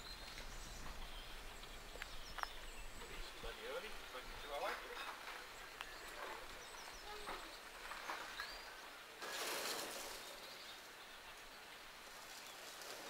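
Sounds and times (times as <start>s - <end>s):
small birds chirping: 0.0s - 13.0s
brief rushing hiss: 9.2s - 10.7s.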